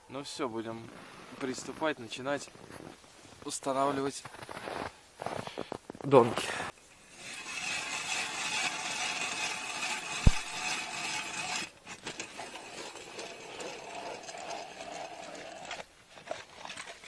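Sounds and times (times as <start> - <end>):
ice auger grinding through ice: 7.1 - 17.0
sharp knock: 10.3 - 10.6.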